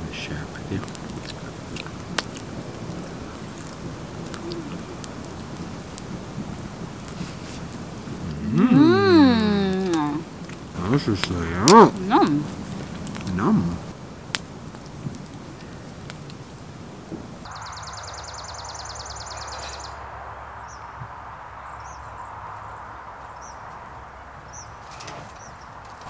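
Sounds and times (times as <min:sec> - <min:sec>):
campfire burning: 0:00.0 - 0:26.0
fire popping: 0:00.0 - 0:26.0
low background noise: 0:00.0 - 0:26.0
bird chirps: 0:17.5 - 0:23.8.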